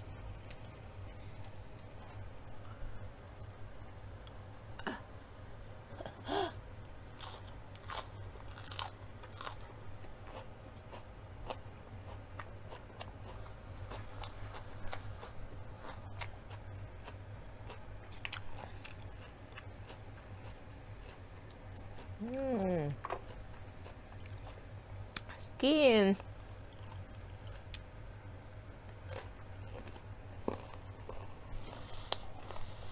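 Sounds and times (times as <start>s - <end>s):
steady low hum: 0.0s - 32.9s
crunching leafy greens: 7.2s - 9.8s.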